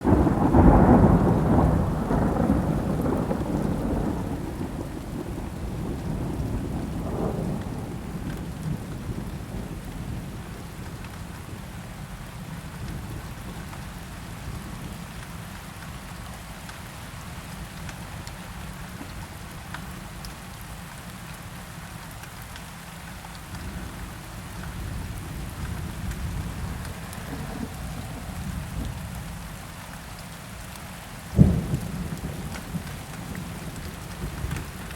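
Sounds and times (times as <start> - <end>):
thunder rumbling: 0.0 - 12.0, 23.6 - 29.8, 31.3 - 34.9
steady rain: 0.0 - 34.9.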